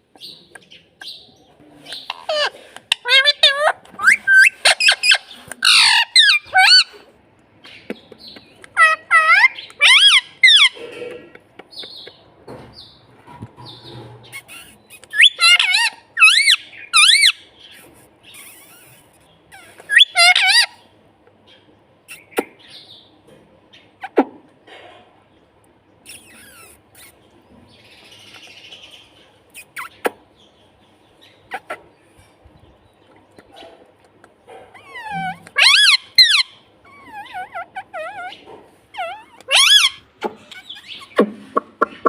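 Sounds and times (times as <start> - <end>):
parrot screeching: 2.1 - 7.0, 8.8 - 10.8, 14.3 - 17.4, 19.6 - 20.8, 34.7 - 41.2.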